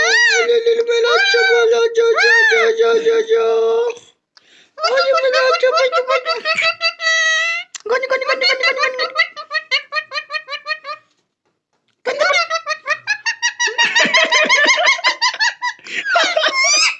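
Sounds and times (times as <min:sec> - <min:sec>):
high-pitched rapid laughing: 0:04.8 - 0:11.1, 0:12.0 - 0:16.9.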